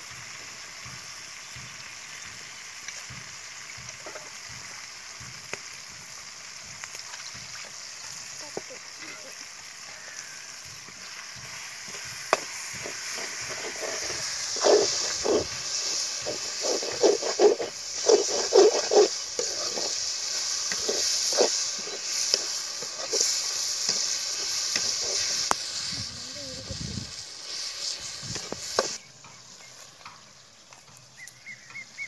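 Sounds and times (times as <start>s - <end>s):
vegetables sizzling in hot oil: 0.0s - 32.0s
metal ladle scraping a pan: 11.8s - 25.6s.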